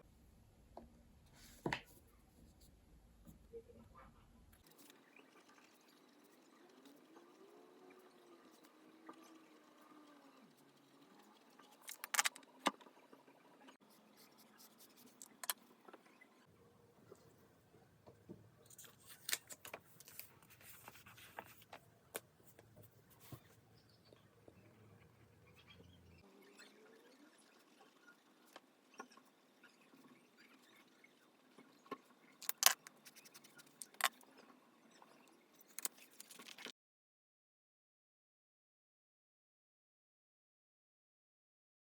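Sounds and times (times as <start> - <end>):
pens clicking and tapping on desk: 11.8 - 12.4, 32.4 - 34.2.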